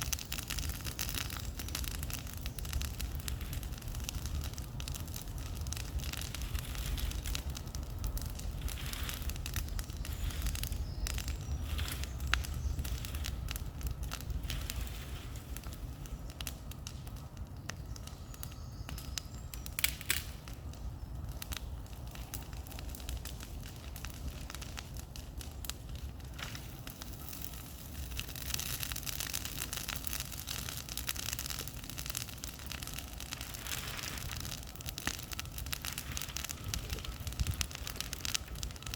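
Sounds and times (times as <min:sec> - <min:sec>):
steady low rumble: 0:00.0 - 0:17.5
bonfire crackling and popping: 0:00.0 - 0:38.9.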